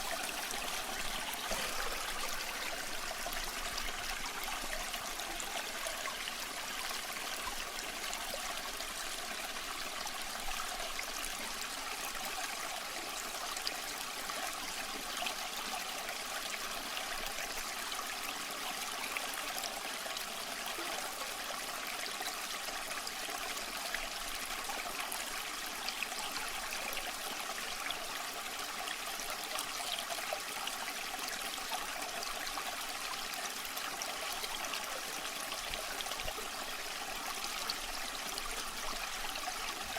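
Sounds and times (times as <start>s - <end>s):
stream running over stones: 0.0s - 39.9s.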